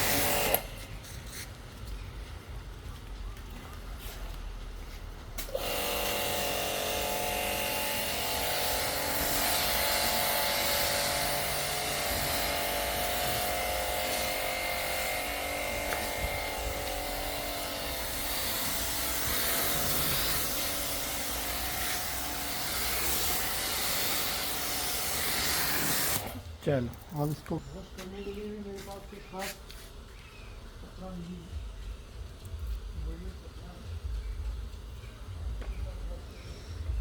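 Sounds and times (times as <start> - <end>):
electric pump motor whine: 0.0 - 0.9, 5.4 - 26.5
spray hissing: 5.4 - 26.4.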